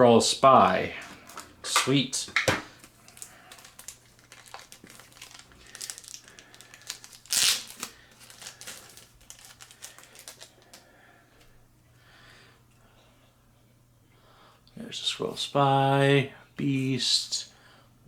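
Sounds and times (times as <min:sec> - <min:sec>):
plastic packaging crinkling: 0:01.0 - 0:10.9.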